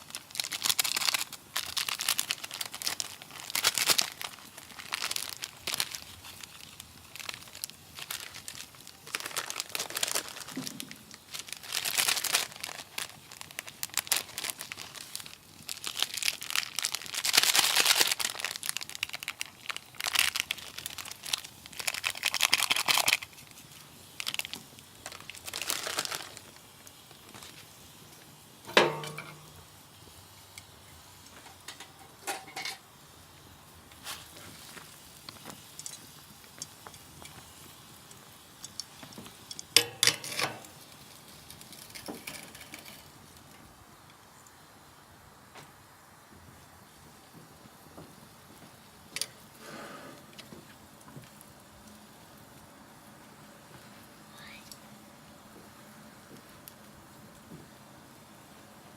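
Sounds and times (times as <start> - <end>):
plastic packet crinkling: 0.0 - 27.8, 34.0 - 43.5.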